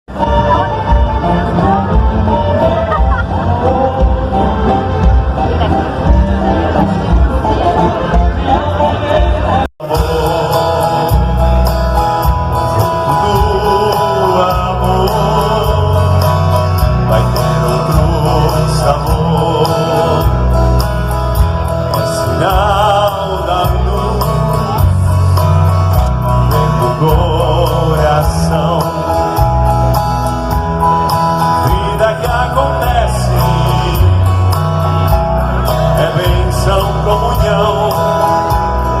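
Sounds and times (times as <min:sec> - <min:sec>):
live band music over loudspeakers: 0:00.1 - 0:39.0.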